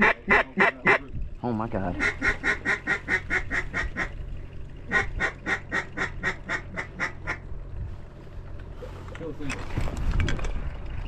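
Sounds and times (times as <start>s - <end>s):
duck call quacking: 0.0s - 1.0s, 2.0s - 4.1s, 4.9s - 7.4s.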